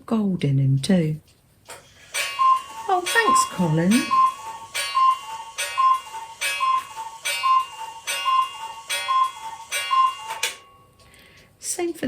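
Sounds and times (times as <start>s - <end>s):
mechanical clock ticking: 1.7s - 10.7s.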